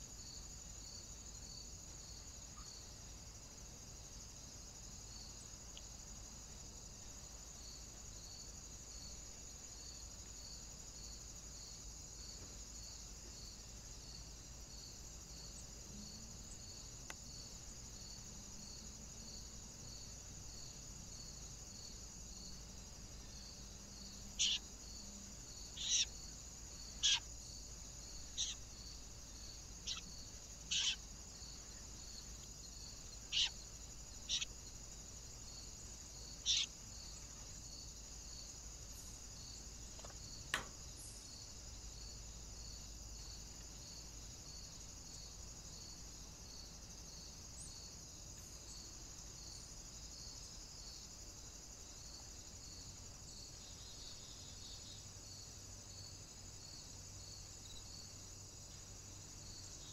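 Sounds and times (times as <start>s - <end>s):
crickets chirring: 0.0s - 59.9s
short sharp bird calls: 24.4s - 24.6s, 27.0s - 27.2s, 30.7s - 31.0s.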